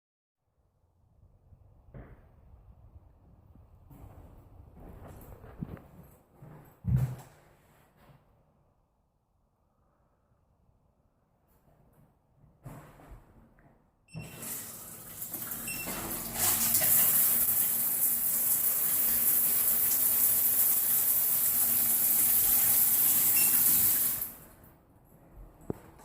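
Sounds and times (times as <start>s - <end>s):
water running hard from tap: 14.3s - 24.4s.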